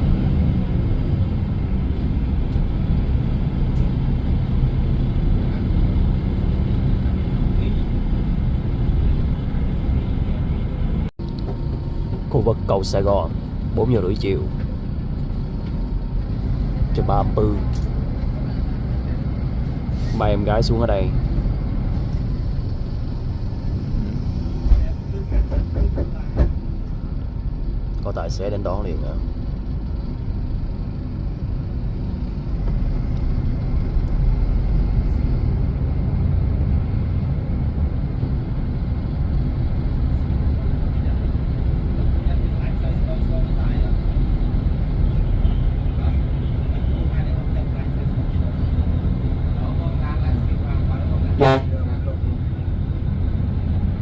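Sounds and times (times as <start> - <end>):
bus engine rumble: 0.0 - 54.0.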